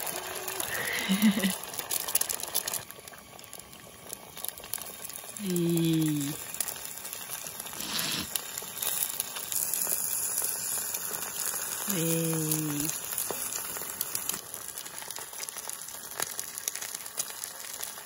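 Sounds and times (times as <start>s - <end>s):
egg and ham sizzling: 0.0s - 18.0s.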